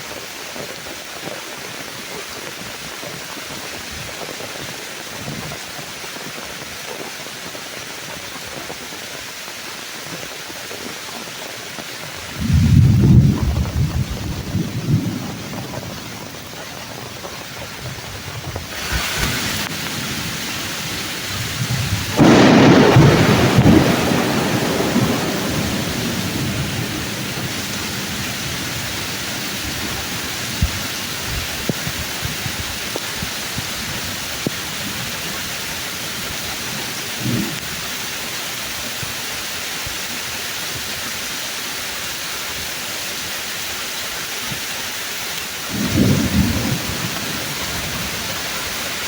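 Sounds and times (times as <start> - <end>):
heavy rain on leaves: 0.0 - 49.0
thunderclap: 12.2 - 35.5, 36.7 - 37.9, 45.7 - 49.0.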